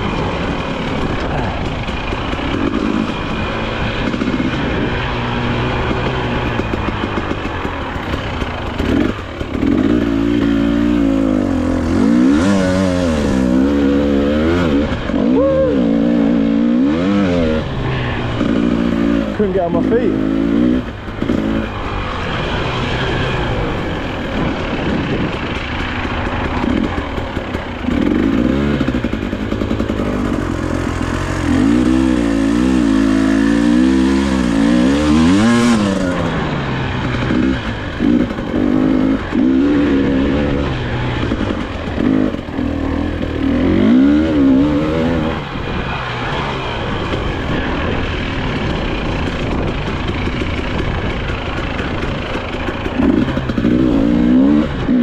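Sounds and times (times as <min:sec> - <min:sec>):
clatter from rough ground: 0:00.0 - 0:15.3, 0:16.0 - 0:55.0
dirt bike engine revving: 0:00.0 - 0:55.0
wind noise: 0:20.6 - 0:39.4, 0:43.8 - 0:55.0.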